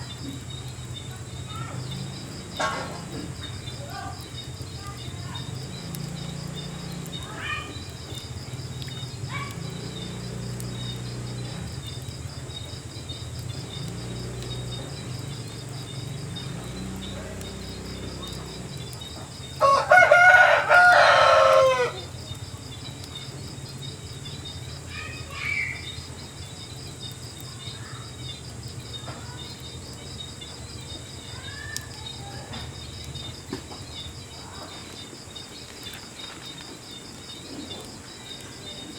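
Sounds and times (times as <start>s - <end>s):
insects chorus: 0.0s - 38.9s
rooster crowing: 19.6s - 22.2s.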